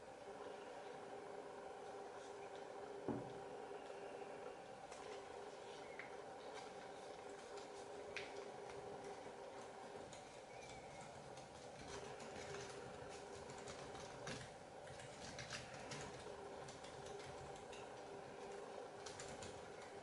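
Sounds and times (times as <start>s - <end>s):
paper crinkling and creasing: 4.8s - 20.0s.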